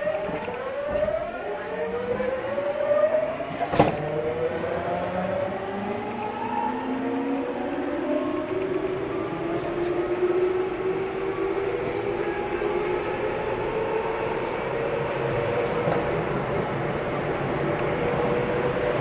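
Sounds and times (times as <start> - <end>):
wheels rumbling on rail: 0.0 - 19.0.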